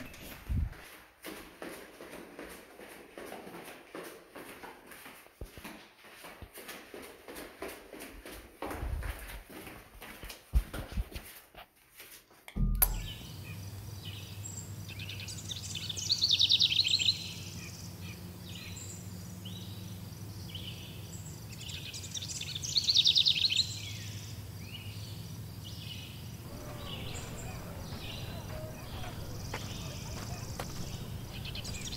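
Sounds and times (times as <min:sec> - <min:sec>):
birds chirping: 0:00.0 - 0:00.9, 0:12.6 - 0:31.9
steady low hum: 0:12.6 - 0:15.9, 0:23.9 - 0:31.9
bird fast trill: 0:12.9 - 0:31.9.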